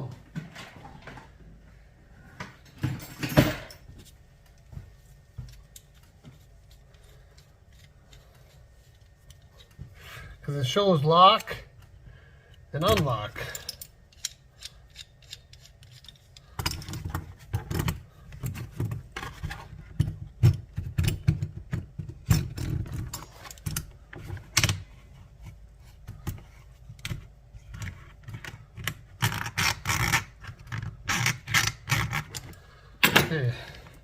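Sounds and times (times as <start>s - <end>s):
chainsaw parts clicking and rattling: 12.8s - 18.0s.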